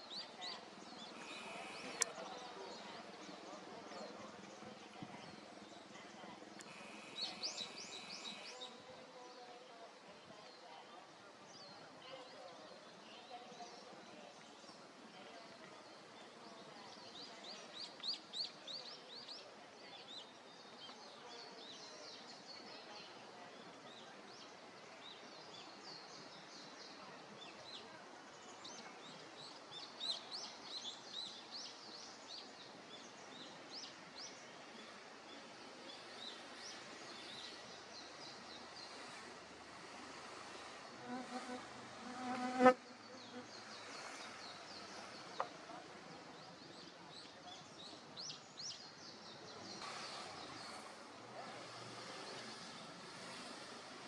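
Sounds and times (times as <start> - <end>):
small songbirds singing: 0.0 - 9.7, 15.7 - 39.3, 46.2 - 54.0
faint outdoor hiss: 0.0 - 54.0.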